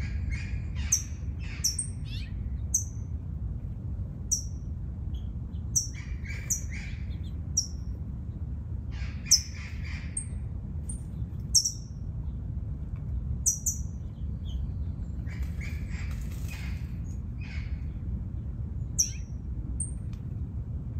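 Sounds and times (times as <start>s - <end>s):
birds chirping: 0.0s - 3.2s, 4.3s - 12.5s
steady low rumble: 0.0s - 20.9s.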